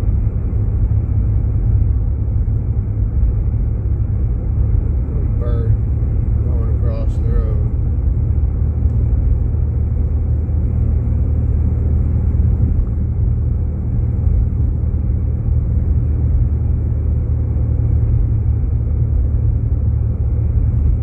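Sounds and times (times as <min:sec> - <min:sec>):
engine and tyre rumble in car: 0:00.0 - 0:21.0.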